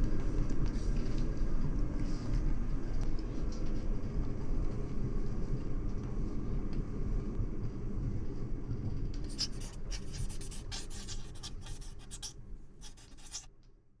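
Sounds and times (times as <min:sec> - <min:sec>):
quick scratching strokes: 0:09.3 - 0:13.5.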